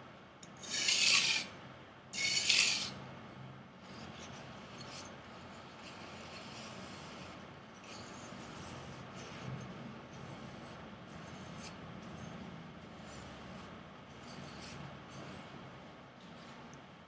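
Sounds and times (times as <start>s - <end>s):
knife rasping on sandpaper: 0.6s - 1.5s, 2.2s - 3.0s.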